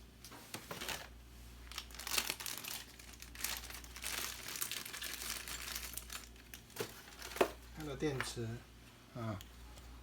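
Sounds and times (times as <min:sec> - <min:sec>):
faint low hum: 0:00.0 - 0:10.0
plastic packaging crinkling: 0:00.5 - 0:08.3.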